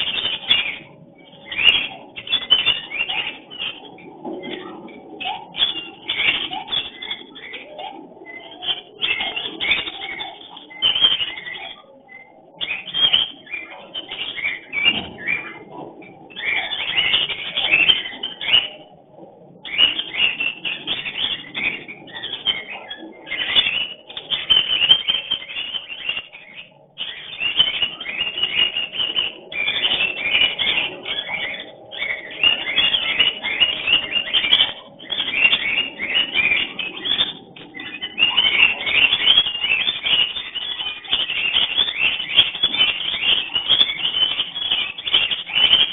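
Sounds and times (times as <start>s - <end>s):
cockatiels chirping: 0.0s - 45.9s.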